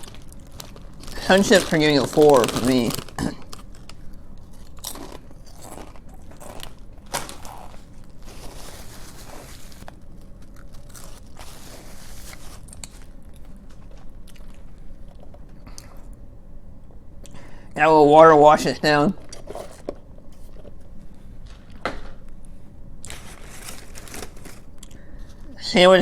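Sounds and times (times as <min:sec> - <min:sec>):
crunching and chewing chips: 0:00.0 - 0:16.2, 0:19.2 - 0:21.8, 0:23.0 - 0:25.6.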